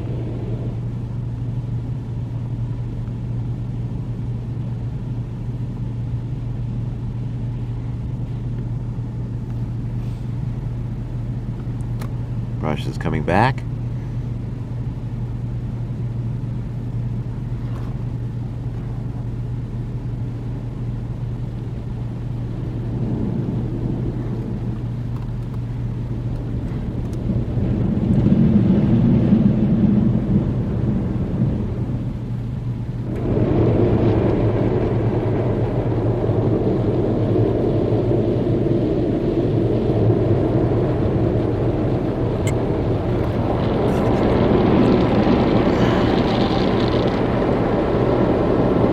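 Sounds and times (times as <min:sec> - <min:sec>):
car wash brushes and water: 0:00.0 - 0:04.7, 0:20.4 - 0:48.9
loud rumble: 0:00.0 - 0:48.9
steady low hum: 0:00.0 - 0:48.9.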